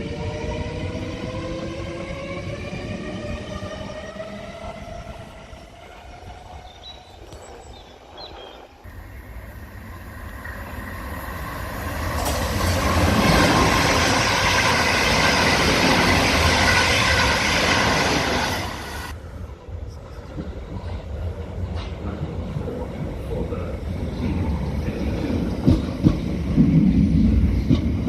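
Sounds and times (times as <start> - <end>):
train wheels rushing on rails: 8.9 - 28.0.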